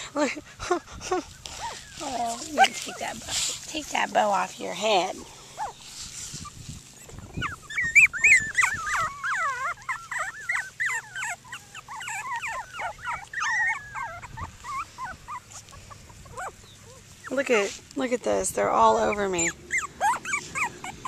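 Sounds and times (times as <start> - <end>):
puppies whining and whimpering: 0.7 - 3.5, 5.5 - 5.8, 6.4 - 17.6, 18.8 - 21.0.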